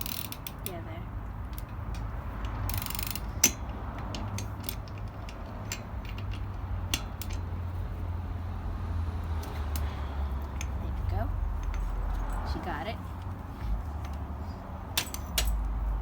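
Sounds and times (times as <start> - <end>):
ratchet wrench clicking: 0.0 - 10.8, 11.4 - 12.4, 14.9 - 16.0
bolt snapping loose: 15.0 - 15.7.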